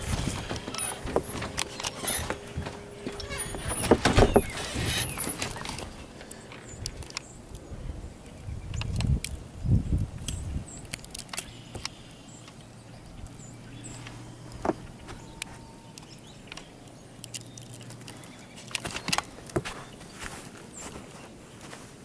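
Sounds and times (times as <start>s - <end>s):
footsteps crunching through snow: 0.0s - 6.0s, 18.6s - 22.0s.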